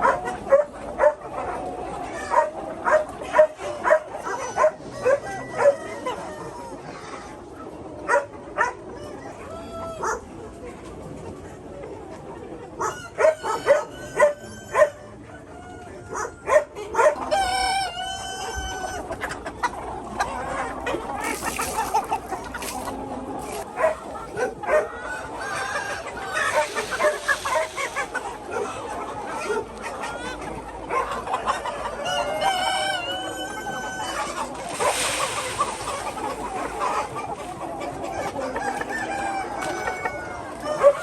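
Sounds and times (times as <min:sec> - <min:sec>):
chickens clucking: 0:00.0 - 0:41.0
rooster crowing: 0:32.1 - 0:35.0.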